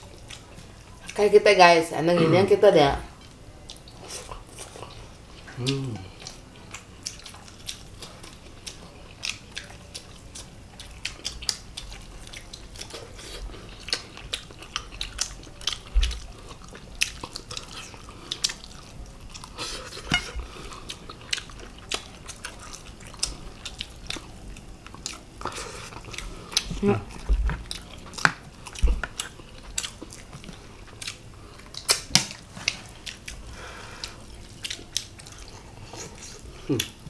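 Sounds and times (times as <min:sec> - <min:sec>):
wet chewing and mouth smacks: 0:03.6 - 0:37.0
cutlery clinking on plates: 0:20.0 - 0:20.4.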